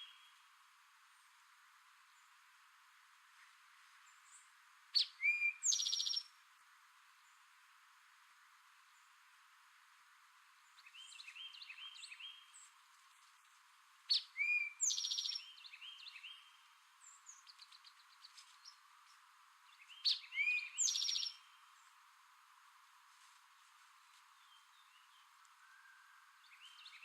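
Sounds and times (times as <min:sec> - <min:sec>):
faint bird chirping: 0:00.0 - 0:00.5, 0:01.2 - 0:02.6, 0:03.3 - 0:07.7, 0:08.7 - 0:22.4, 0:23.1 - 0:27.0
bird song with fast trill: 0:05.0 - 0:06.3, 0:14.1 - 0:18.8, 0:19.7 - 0:21.7, 0:24.4 - 0:27.0.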